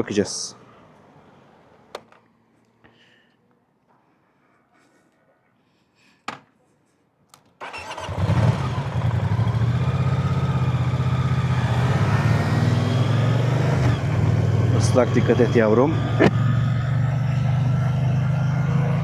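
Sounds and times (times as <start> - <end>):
motorcycle engine starting and idling: 7.6 - 11.8.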